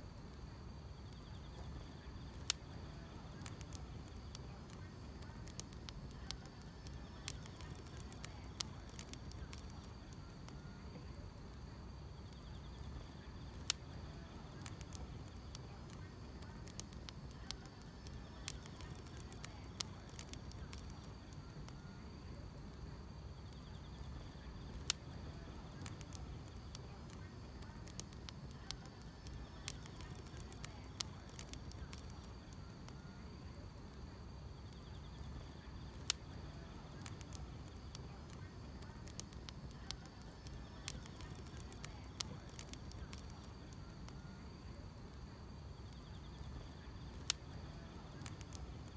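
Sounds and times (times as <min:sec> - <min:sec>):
insects chirping: 0:00.0 - 0:48.9
wood fire crackling and popping: 0:00.0 - 0:48.9.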